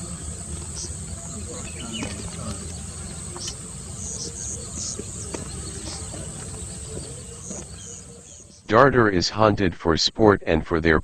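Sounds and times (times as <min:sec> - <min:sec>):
faint ticks: 0:00.0 - 0:08.1
high-pitched insect drone: 0:00.0 - 0:08.6.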